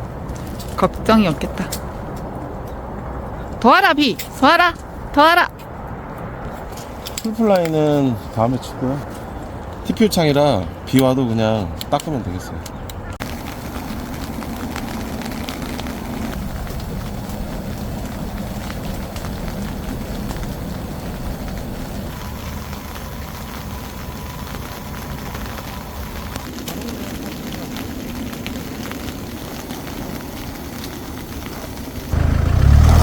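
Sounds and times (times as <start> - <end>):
raindrop ticks: 10.9 - 32.8
rain hissing: 13.2 - 33.0.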